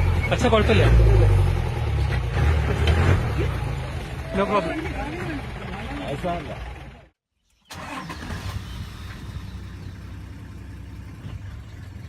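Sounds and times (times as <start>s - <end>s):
vehicle engine idling: 3.4s - 12.0s.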